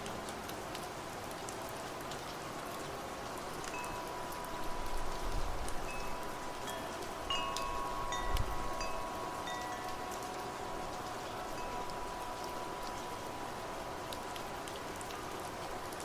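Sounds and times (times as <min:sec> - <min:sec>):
steady rain: 0:00.0 - 0:16.0
wind chimes ringing: 0:03.7 - 0:13.6.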